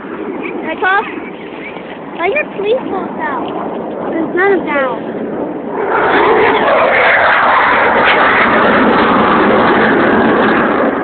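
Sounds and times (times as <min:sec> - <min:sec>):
airplane passing low: 0:00.0 - 0:11.0.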